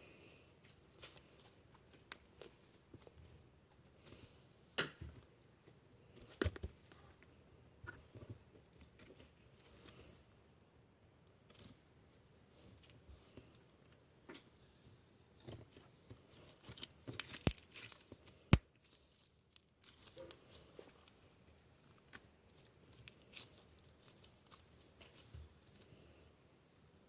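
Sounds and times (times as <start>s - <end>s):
light rustling and crinkling: 0.5s - 4.5s, 11.3s - 27.0s.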